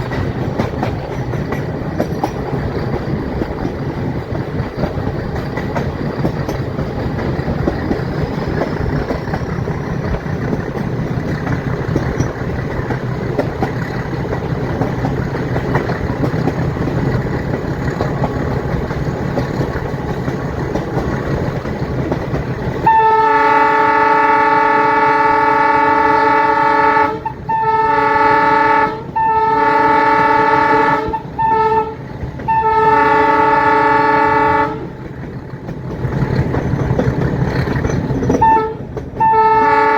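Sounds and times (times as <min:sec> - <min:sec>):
train rumbling: 0:00.0 - 0:39.9
locomotive horn blasts: 0:22.8 - 0:35.0, 0:38.4 - 0:39.9.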